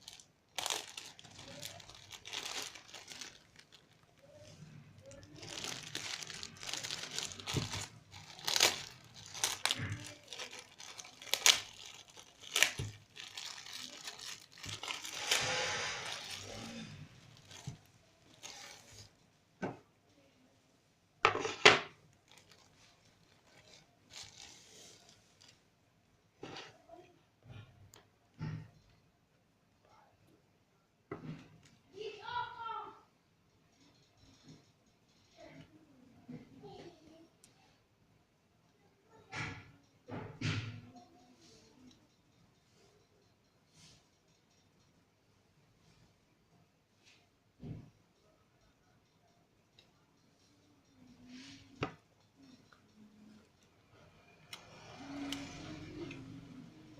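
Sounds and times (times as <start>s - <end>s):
packaging crinkling and tearing: 0.0s - 19.1s, 22.2s - 25.6s.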